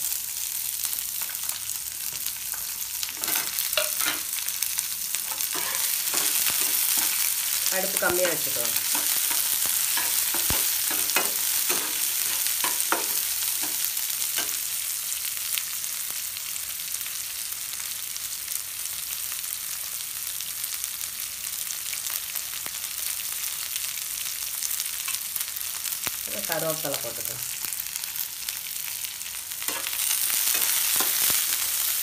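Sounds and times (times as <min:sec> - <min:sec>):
onions sizzling in oil: 0:00.0 - 0:32.0
spatula scraping a frying pan: 0:03.0 - 0:04.6, 0:05.2 - 0:07.6, 0:08.2 - 0:14.7, 0:29.6 - 0:31.9.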